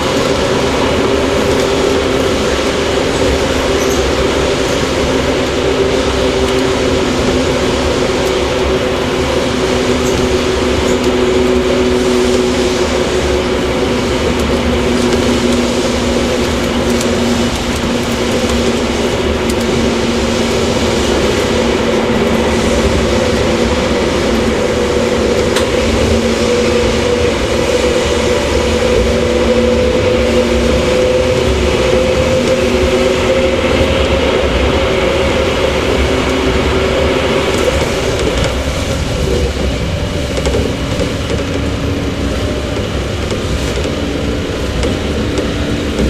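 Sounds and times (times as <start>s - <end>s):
electric train rumble and whine: 0.0s - 46.0s.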